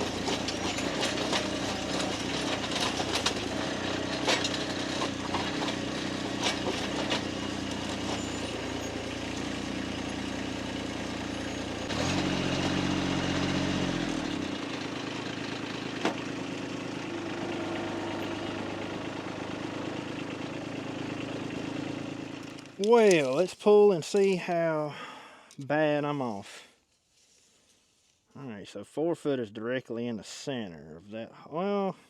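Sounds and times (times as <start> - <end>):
engine idling: 0.0 - 23.5.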